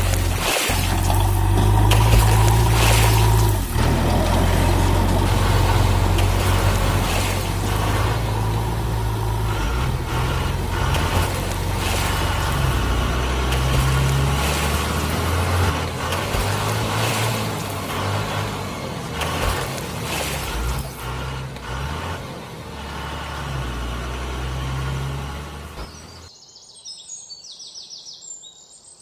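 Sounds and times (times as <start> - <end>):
low engine-like rumble: 0.0 - 24.7.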